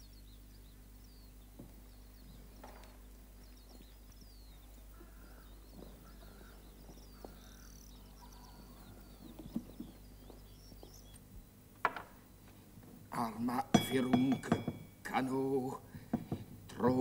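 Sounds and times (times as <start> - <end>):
small birds chirping: 0.0 - 17.0
steady low hum: 0.0 - 17.0
short knocks: 13.7 - 15.0, 16.0 - 17.0.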